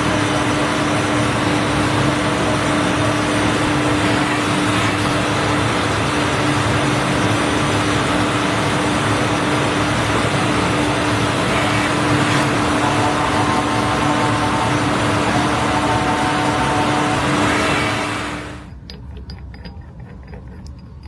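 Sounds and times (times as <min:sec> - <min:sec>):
metal lathe cutting steel: 0:00.0 - 0:20.8.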